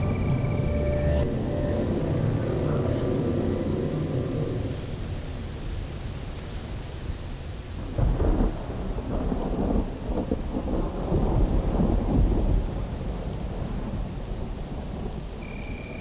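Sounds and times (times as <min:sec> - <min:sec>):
dense low rumble: 0:00.0 - 0:06.4
rain-like hiss: 0:00.0 - 0:16.0.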